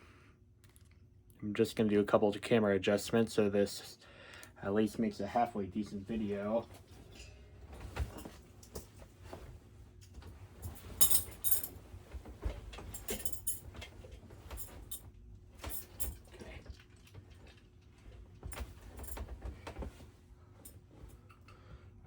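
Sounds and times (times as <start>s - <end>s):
objects handled with clicks and rustles: 6.6s - 21.6s.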